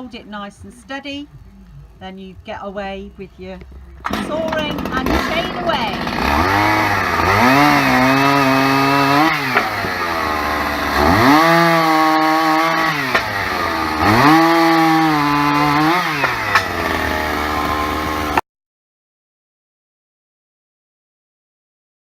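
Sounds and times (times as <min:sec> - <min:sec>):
chainsaw sawing a log: 0:04.0 - 0:18.4.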